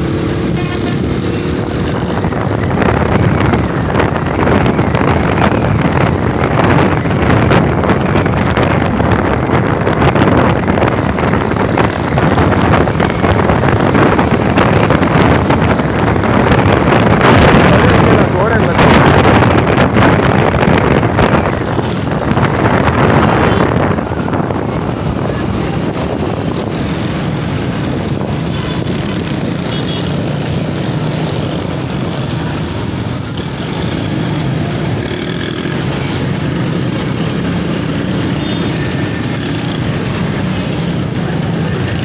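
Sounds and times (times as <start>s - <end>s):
road traffic: 0.0s - 42.0s.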